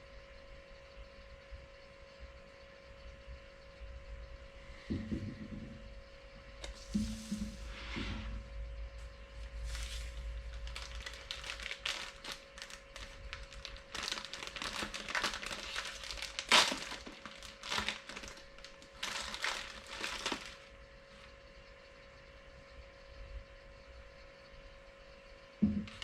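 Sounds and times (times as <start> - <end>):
packaging crinkling and rustling: 9.6 - 20.7.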